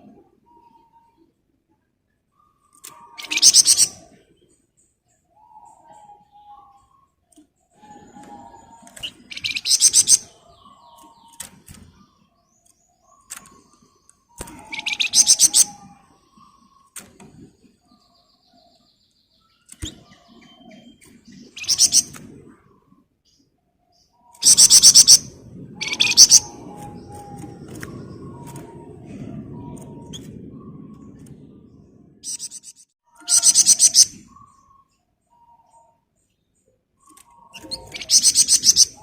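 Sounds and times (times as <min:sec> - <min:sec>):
songbird rattling trills: 0:02.6 - 0:04.1, 0:08.7 - 0:11.7, 0:13.1 - 0:16.8, 0:19.6 - 0:22.2, 0:24.4 - 0:28.8, 0:32.2 - 0:34.4, 0:37.0 - 0:39.0.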